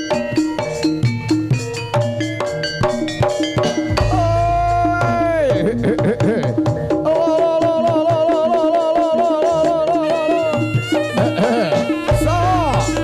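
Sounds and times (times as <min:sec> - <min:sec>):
high melodic lead: 0:00.0 - 0:07.0, 0:10.1 - 0:13.0
drums: 0:00.0 - 0:13.0
gongs: 0:02.6 - 0:05.8.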